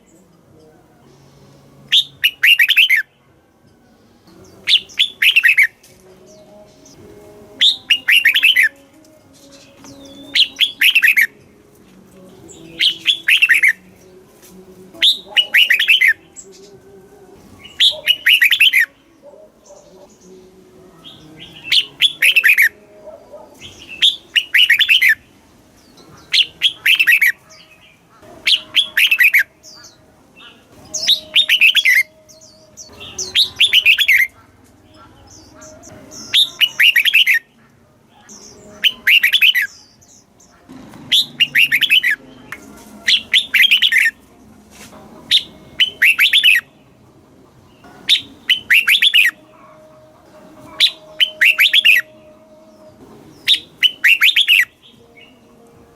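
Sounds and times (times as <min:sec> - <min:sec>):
bird singing falling notes: 0:07.6 - 0:11.4, 0:12.4 - 0:13.8, 0:17.6 - 0:18.9, 0:25.8 - 0:37.5, 0:41.0 - 0:44.2, 0:50.7 - 0:55.5.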